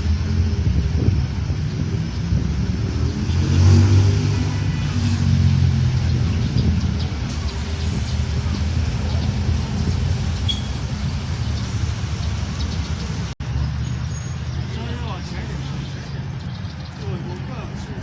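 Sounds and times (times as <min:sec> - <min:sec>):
vehicle engine passing: 0:00.0 - 0:18.0.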